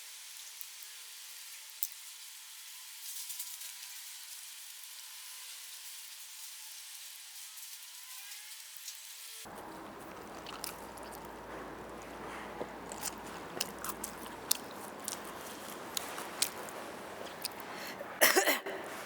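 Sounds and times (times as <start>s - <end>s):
chewing with wet clicks and smacks: 9.5s - 18.2s.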